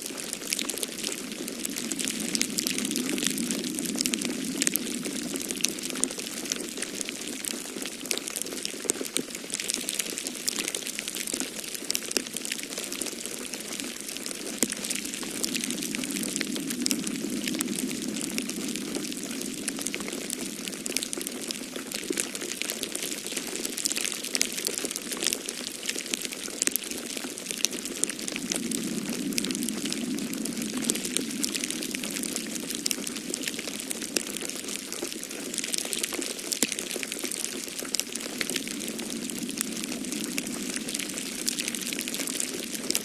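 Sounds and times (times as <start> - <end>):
wood fire crackling: 0.0 - 43.0
storm wind rushing: 0.1 - 7.5, 13.8 - 22.3, 27.4 - 35.8, 37.0 - 43.0.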